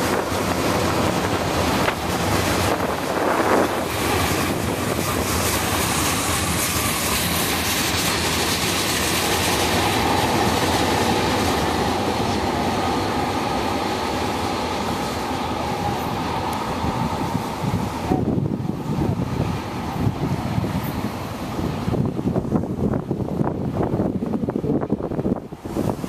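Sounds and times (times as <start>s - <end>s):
freight train wheels clattering: 0.0s - 18.0s.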